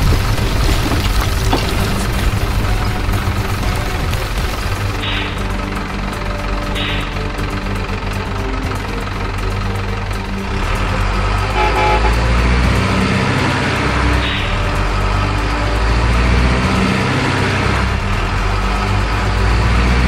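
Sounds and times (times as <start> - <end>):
truck engine running: 0.0 - 20.0
truck horn toot: 2.5 - 8.6, 10.5 - 15.1.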